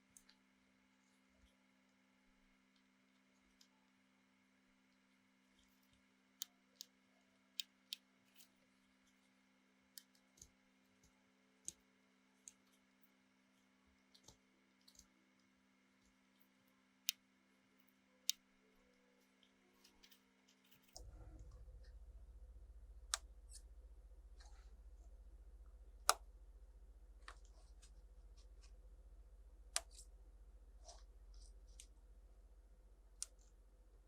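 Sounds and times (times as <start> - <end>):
low hum: 20.7 - 34.0.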